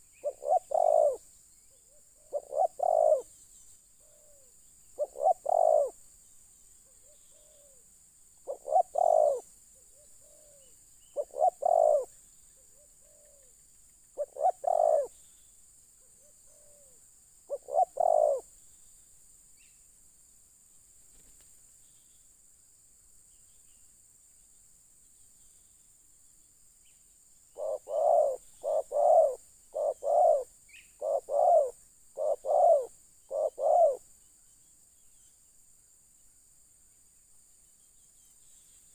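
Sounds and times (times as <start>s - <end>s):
dove cooing: 0.0s - 1.2s, 1.8s - 3.3s, 4.0s - 6.0s, 6.9s - 7.8s, 8.5s - 13.5s, 14.2s - 15.2s, 16.1s - 18.5s, 27.6s - 34.0s.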